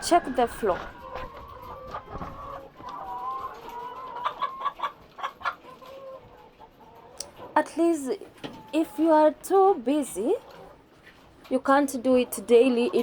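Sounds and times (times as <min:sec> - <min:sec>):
chickens clucking and calling: 0:00.0 - 0:13.0
chickens short sharp calls: 0:01.0 - 0:06.6.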